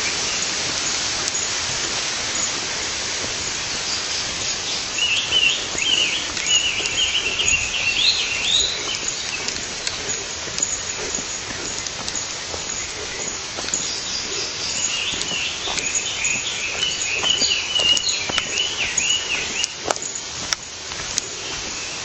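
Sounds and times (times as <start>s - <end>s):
water rushing hiss: 0.0s - 22.0s
small bird twittering: 3.4s - 20.4s.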